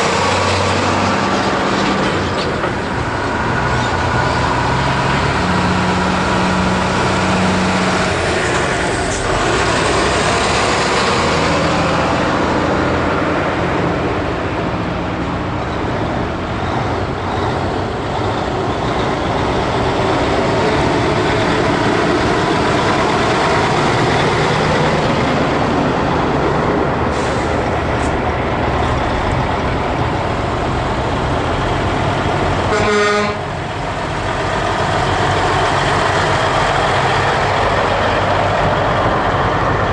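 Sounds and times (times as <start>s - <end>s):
heavy trucks driving past: 0.0s - 39.9s
truck horns tooting: 32.5s - 33.7s.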